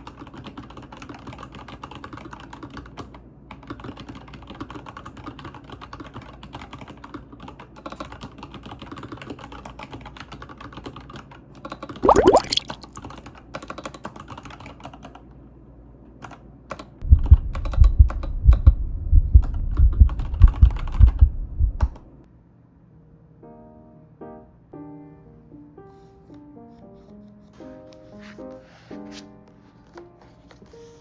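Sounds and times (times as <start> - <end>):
typing on a mechanical keyboard: 0.0 - 12.0, 13.0 - 15.3, 16.2 - 18.8, 19.4 - 22.0.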